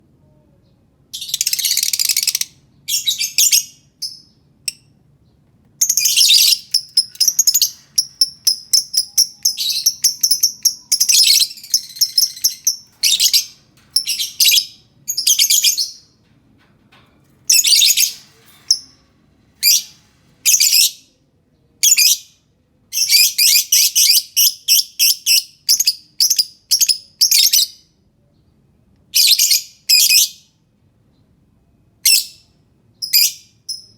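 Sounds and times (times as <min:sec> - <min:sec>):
lovebird chattering chirps: 0:05.8 - 0:16.0.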